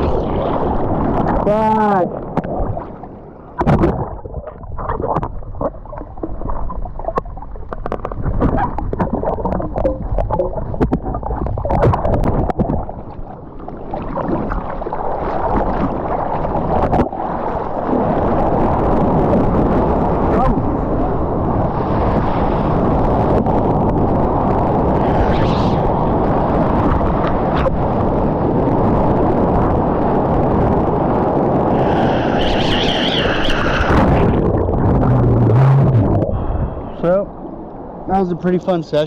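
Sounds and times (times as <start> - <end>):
seawater sloshing and splashing: 0.0 - 18.9
deep rumble of water: 0.0 - 39.0
wind: 0.0 - 39.0.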